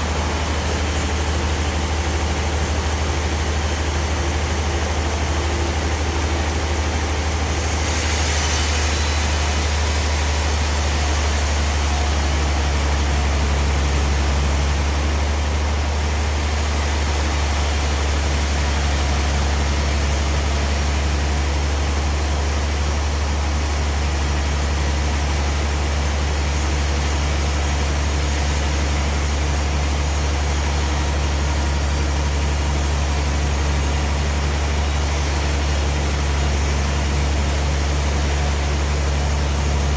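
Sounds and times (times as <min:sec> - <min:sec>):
large engine droning: 0:00.0 - 0:39.9
machinery hiss: 0:07.4 - 0:14.6.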